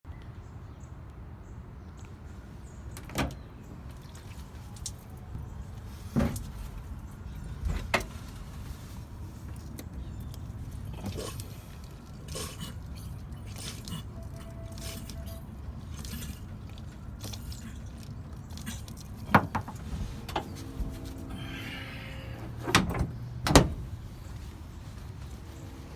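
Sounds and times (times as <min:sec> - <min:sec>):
low steady rumble: 0:05.2 - 0:25.9.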